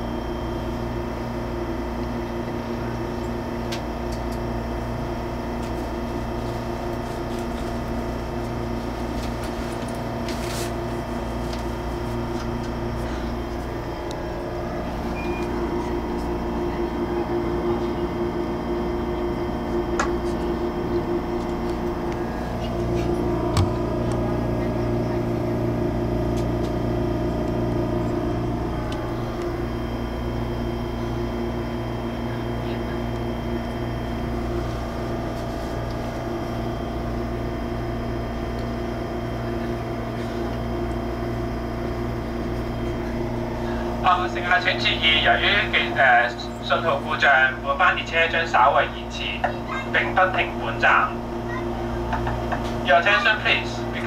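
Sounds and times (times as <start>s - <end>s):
electric train cabin hum: 0.0s - 54.0s.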